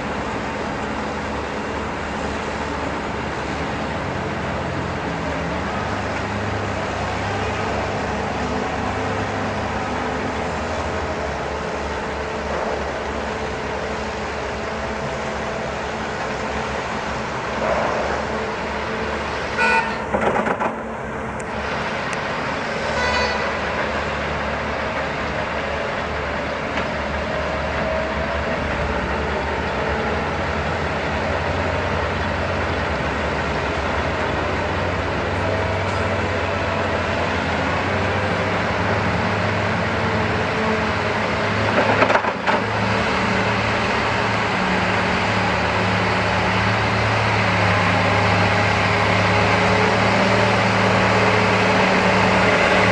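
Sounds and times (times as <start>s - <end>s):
heavy diesel engines running: 0.0s - 52.9s
horn toots: 19.5s - 20.2s, 22.8s - 23.6s.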